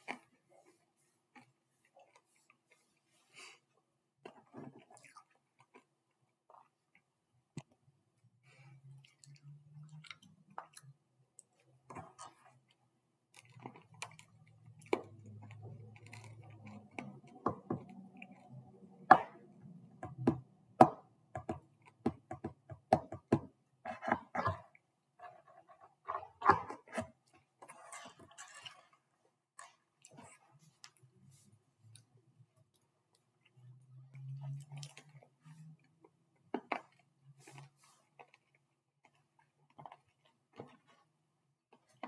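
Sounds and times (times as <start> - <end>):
candy crunching and chewing: 4.3 - 7.9, 8.5 - 20.0, 24.6 - 41.0.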